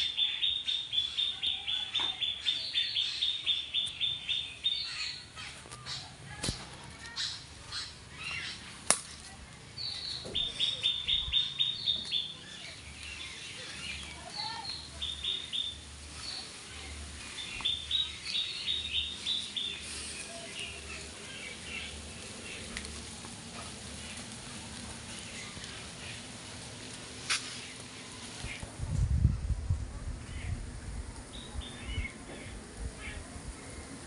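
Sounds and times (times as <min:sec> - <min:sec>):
small birds chirping: 0:00.0 - 0:28.7, 0:30.2 - 0:34.0.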